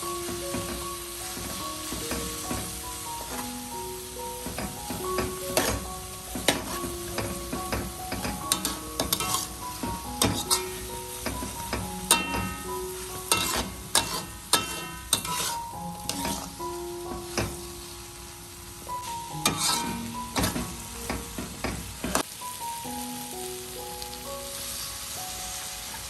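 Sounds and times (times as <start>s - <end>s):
food sizzling in a pan: 0.0s - 26.0s
soft background music: 0.0s - 26.0s
utensil scraping a pan: 8.1s - 16.6s, 19.4s - 20.7s.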